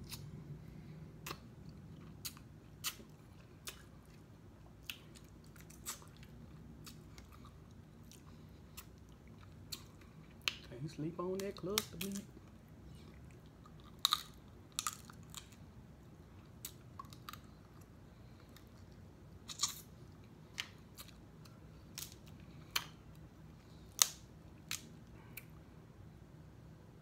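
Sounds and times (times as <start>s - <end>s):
chewing and wet mouth smacks: 1.2s - 10.7s, 16.4s - 25.5s.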